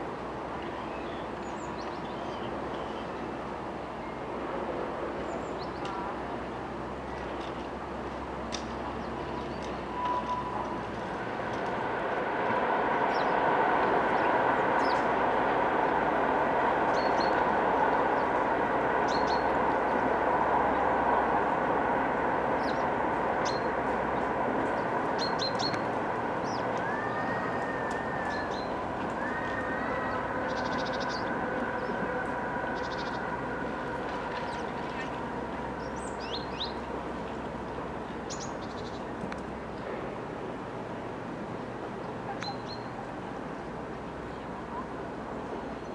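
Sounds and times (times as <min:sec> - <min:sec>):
train rolling past: 0:03.6 - 0:42.0
steady background hum: 0:10.8 - 0:40.9.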